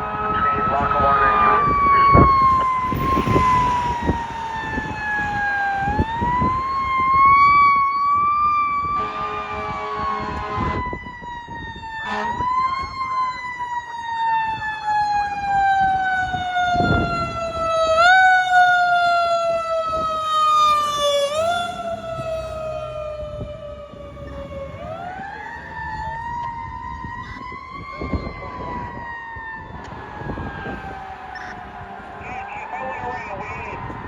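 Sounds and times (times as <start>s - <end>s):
fire engine siren wailing: 0.0s - 34.0s
low vehicle rumble: 19.1s - 33.1s.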